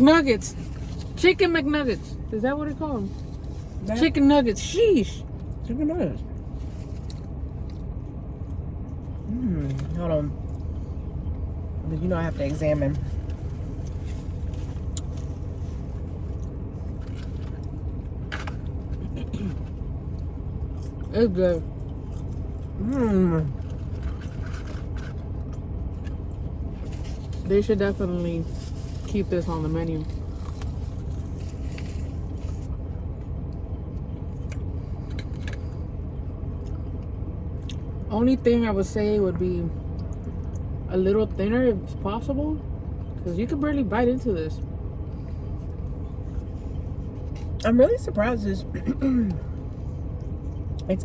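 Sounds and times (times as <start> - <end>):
car engine running: 0.0 - 51.0
faint clicks and rustles: 23.5 - 35.8.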